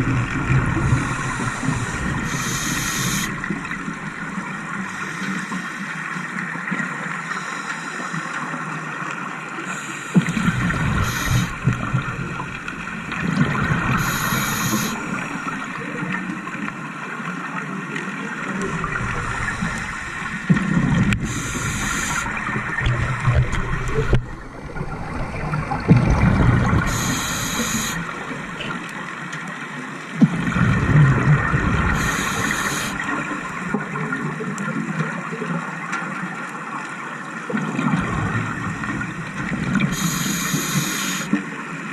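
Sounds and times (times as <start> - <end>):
exhaled bubbles gurgling: 0.0 - 7.3, 9.6 - 29.3, 30.2 - 35.8, 37.4 - 41.9
steady underwater hiss: 0.0 - 34.4, 37.2 - 41.9
diver breathing through regulator: 0.8 - 3.6, 9.7 - 11.7, 13.9 - 15.5, 18.8 - 20.5, 21.1 - 22.8, 26.8 - 28.2, 31.9 - 33.3, 39.8 - 41.4.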